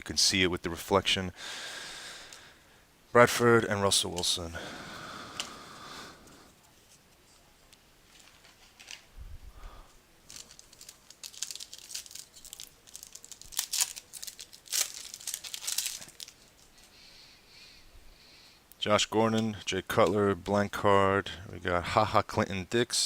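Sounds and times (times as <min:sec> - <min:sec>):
wrapper tearing and crinkling: 0:08.1 - 0:09.1, 0:10.2 - 0:16.7.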